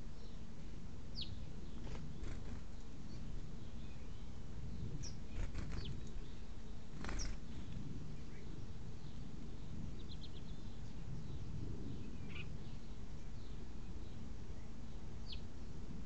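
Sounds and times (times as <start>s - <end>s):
low background rumble: 0.0s - 16.0s
small birds chirping: 0.0s - 16.0s.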